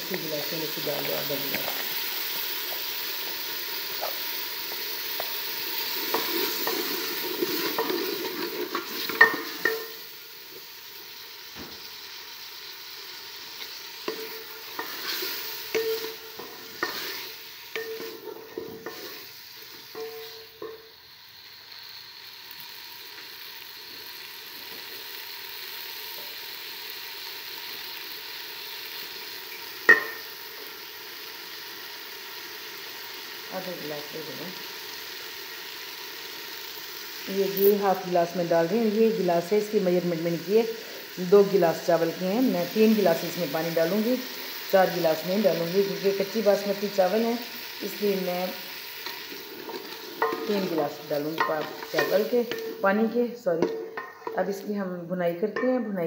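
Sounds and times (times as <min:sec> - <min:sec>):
peas sizzling in oil: 0:00.0 - 0:56.0
spatula scraping a metal pot: 0:14.1 - 0:19.2, 0:49.0 - 0:52.9.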